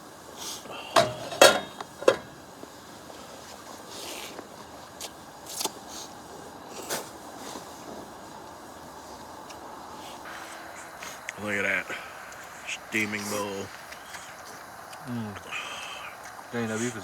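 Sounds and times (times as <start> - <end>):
utensils clinking against pot: 0.9 - 2.4.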